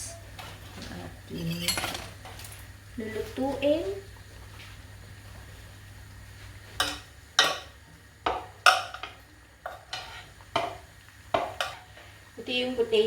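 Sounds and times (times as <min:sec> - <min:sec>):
utensils clinking and scraping dishes: 0:00.4 - 0:02.6.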